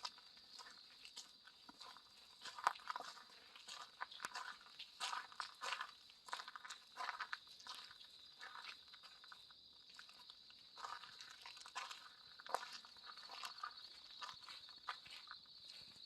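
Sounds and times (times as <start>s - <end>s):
footsteps crunching on path: 0.0s - 16.0s.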